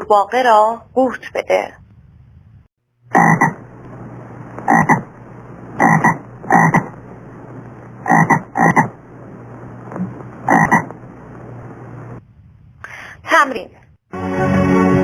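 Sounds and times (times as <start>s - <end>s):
steady background hiss: 1.8s - 13.7s
frog croaking: 3.1s - 3.7s, 4.6s - 5.2s, 5.8s - 7.0s, 8.0s - 9.0s, 9.9s - 11.1s.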